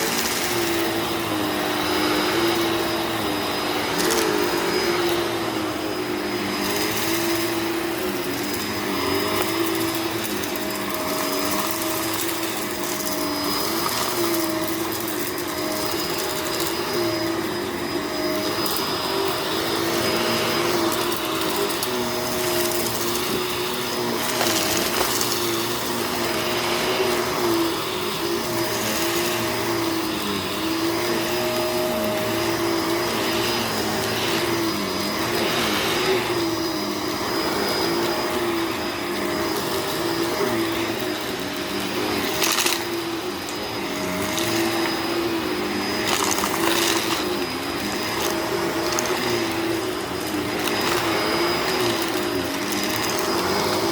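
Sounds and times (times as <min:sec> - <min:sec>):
vacuum cleaner motor hum: 0:00.0 - 0:53.9
debris crackling in vacuum: 0:18.2 - 0:30.4.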